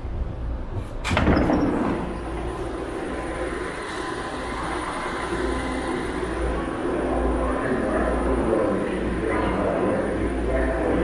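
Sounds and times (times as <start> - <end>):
train at underground platform: 0.0 - 11.0.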